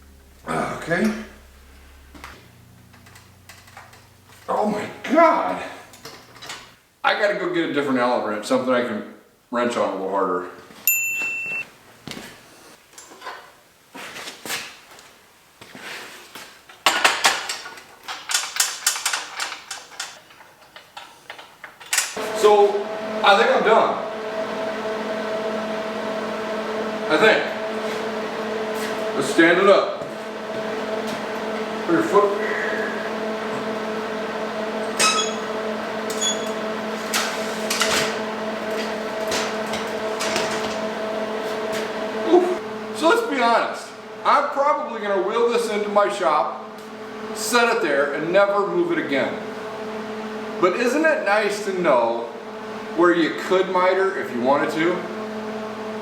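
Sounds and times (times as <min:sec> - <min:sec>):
low hum: 0:00.0 - 0:06.8, 0:22.2 - 0:43.0
short high beep: 0:10.9 - 0:11.7
metal tools clinking and rattling: 0:16.8 - 0:22.2.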